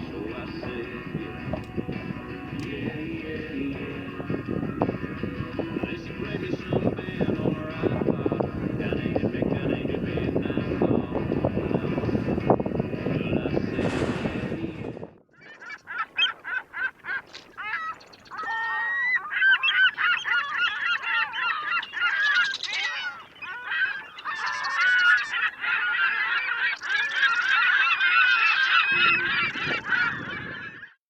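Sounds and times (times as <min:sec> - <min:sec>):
flock of birds calling: 0:15.4 - 0:31.0.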